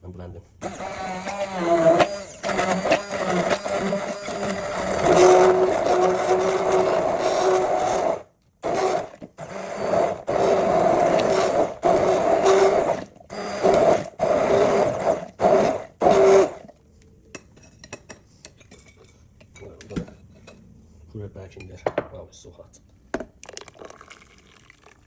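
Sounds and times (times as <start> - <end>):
electric blender motor running: 0.6 - 16.7.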